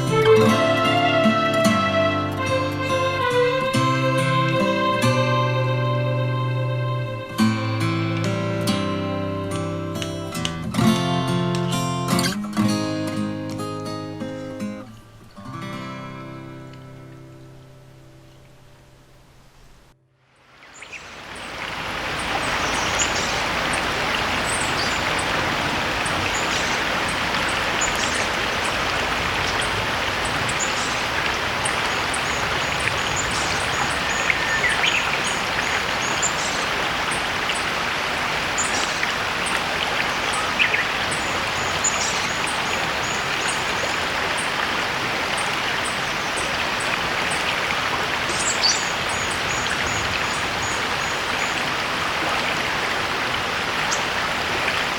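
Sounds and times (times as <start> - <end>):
stream babbling: 0.0 - 15.2, 15.9 - 54.9
small birds chirping: 20.6 - 37.8, 38.4 - 44.6, 48.2 - 51.6.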